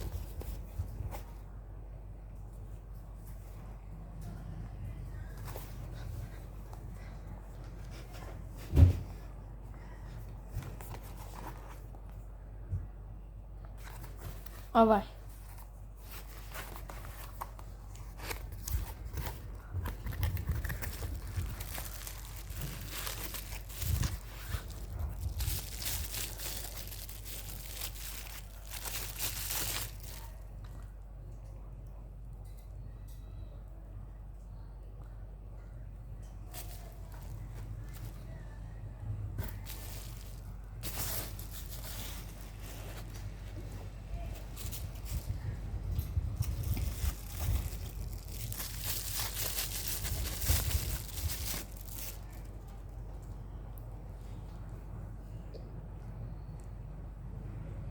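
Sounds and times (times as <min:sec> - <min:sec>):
plastic and paper crinkling: 0:00.0 - 0:01.3, 0:10.4 - 0:12.0, 0:13.7 - 0:30.9, 0:36.4 - 0:38.5, 0:39.3 - 0:53.0.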